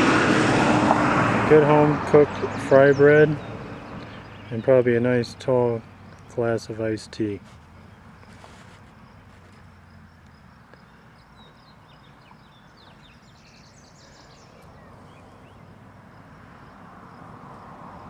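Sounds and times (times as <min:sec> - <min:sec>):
low outdoor background noise: 0:00.0 - 0:18.0
bird singing high chirps: 0:02.4 - 0:06.4, 0:10.8 - 0:15.8.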